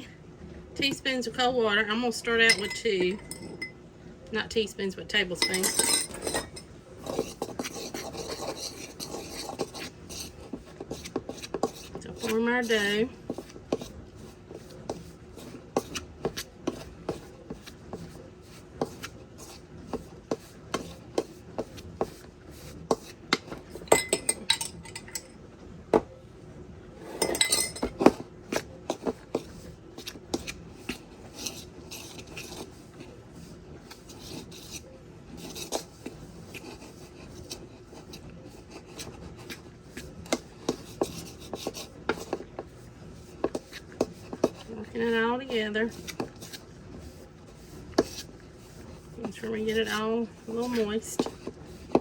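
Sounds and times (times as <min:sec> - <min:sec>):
utensil scraping dough in bowl: 0:00.8 - 0:03.8, 0:04.4 - 0:25.3, 0:27.0 - 0:52.0
utensil clinking against bowl: 0:02.3 - 0:03.8, 0:05.3 - 0:07.3, 0:23.8 - 0:25.3, 0:27.2 - 0:28.2.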